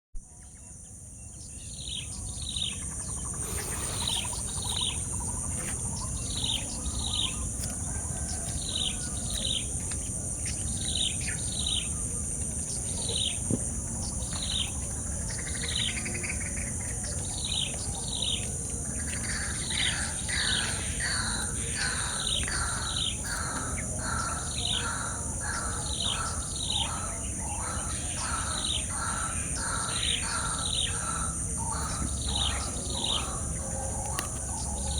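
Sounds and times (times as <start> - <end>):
high-pitched insect drone: 3.0 - 5.6
lower faster bird calls: 3.2 - 5.4.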